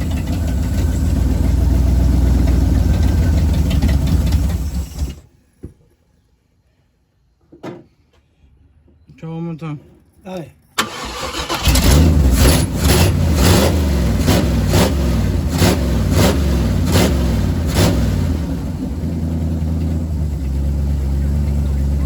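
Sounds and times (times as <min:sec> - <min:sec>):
car engine idling: 0:00.0 - 0:05.2, 0:10.8 - 0:22.0.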